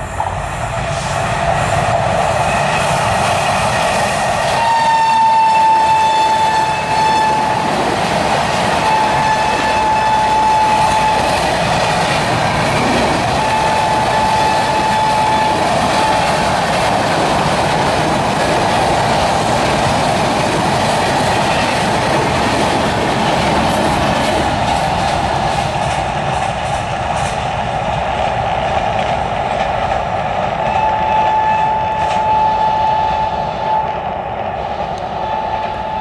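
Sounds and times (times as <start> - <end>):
wheels rushing on rails: 0.0 - 36.0
train horn blasts: 4.0 - 17.0, 30.6 - 36.0.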